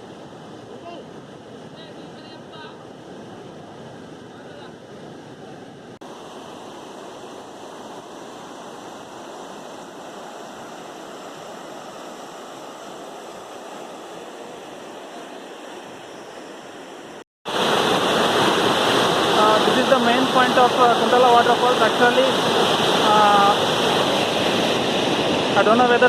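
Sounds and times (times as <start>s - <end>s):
waterfall rushing: 6.0s - 26.0s.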